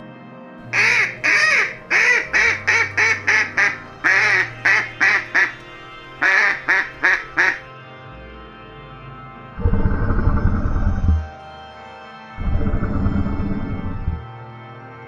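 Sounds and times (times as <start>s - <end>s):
duck quacking: 0.7s - 7.6s.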